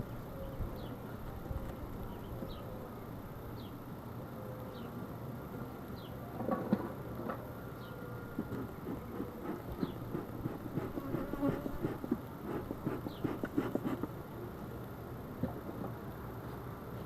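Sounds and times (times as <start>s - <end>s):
honeybees buzzing: 8.4s - 14.1s.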